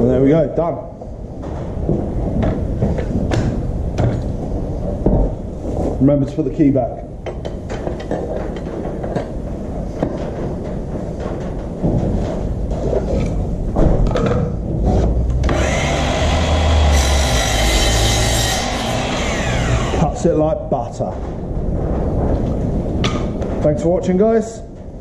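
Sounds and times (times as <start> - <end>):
chop saw cutting with high whine: 15.4 - 20.2.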